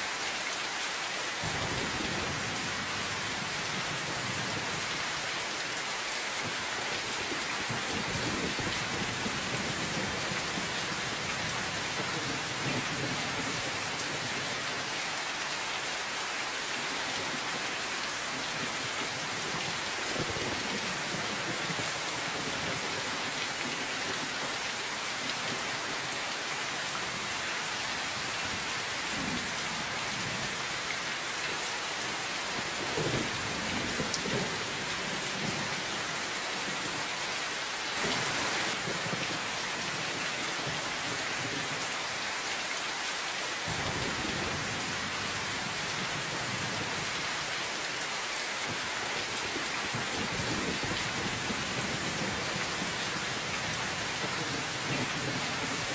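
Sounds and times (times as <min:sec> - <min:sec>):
steady rain falling: 0:00.0 - 0:55.9
thunder rumbles: 0:01.4 - 0:04.7.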